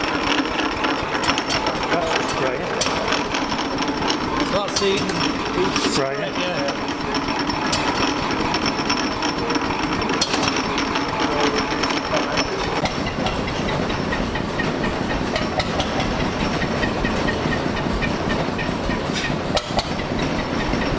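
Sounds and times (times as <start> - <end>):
oil engine clattering with hiss: 0.0 - 20.9.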